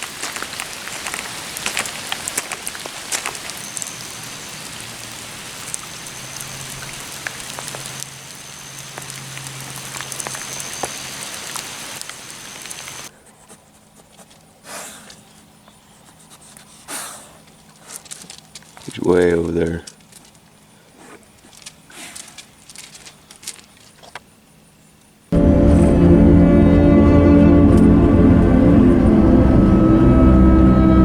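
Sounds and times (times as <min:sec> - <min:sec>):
steady rain falling: 0:00.0 - 0:13.1, 0:21.4 - 0:23.8
rustling: 0:19.8 - 0:24.2.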